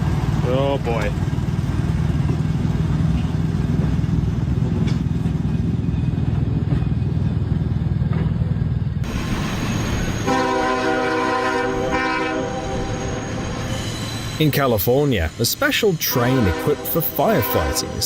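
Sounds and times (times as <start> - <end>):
train rumbling: 0.0 - 18.0
train horn: 10.2 - 13.6, 16.1 - 18.0.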